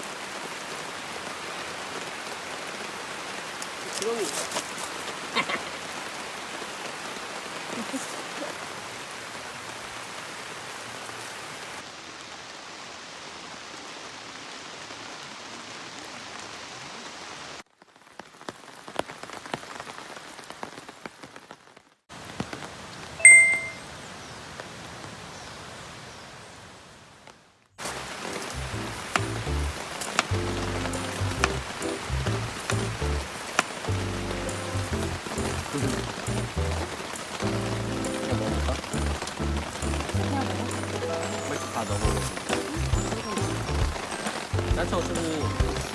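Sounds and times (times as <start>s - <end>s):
rain falling: 0.0s - 45.9s
short metallic ding: 23.2s - 23.8s.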